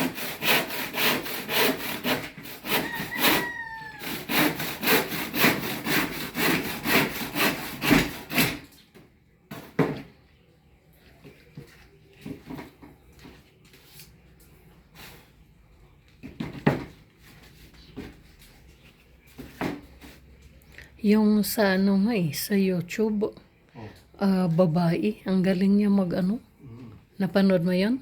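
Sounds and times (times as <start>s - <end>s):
hand saw cutting wood: 0.0s - 8.8s.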